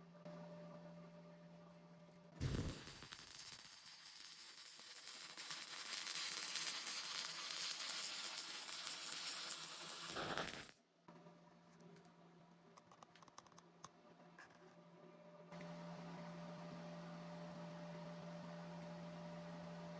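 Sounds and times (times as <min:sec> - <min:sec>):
welding arc crackling hiss: 0:02.4 - 0:10.8.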